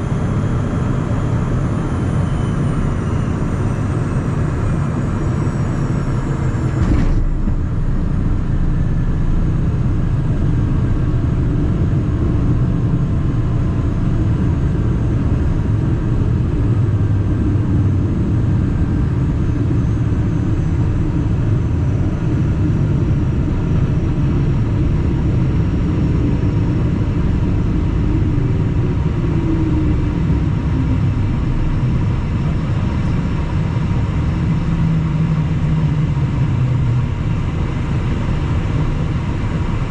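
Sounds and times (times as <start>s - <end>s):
faint steady whine: 0.0s - 39.9s
jet cabin engine rumble: 0.0s - 39.9s.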